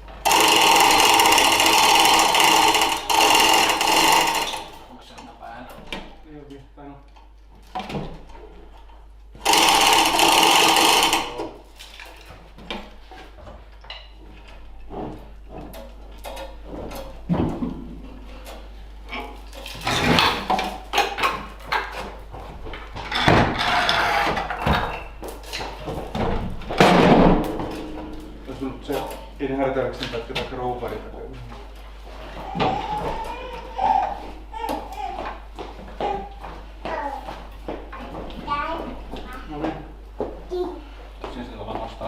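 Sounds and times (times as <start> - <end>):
power tool running: 0.0 - 4.9, 9.4 - 11.7
rattling work: 0.0 - 6.2, 7.7 - 13.4, 14.0 - 39.9.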